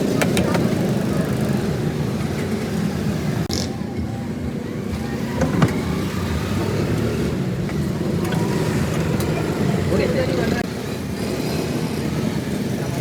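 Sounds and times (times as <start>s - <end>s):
road traffic engine rumble: 0.0s - 13.0s.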